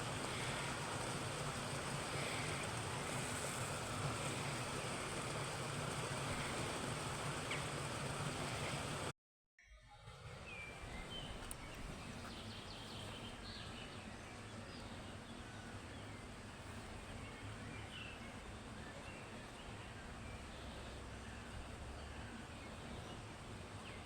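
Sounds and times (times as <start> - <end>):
low outdoor rumble: 0.0 - 9.1, 10.0 - 24.0.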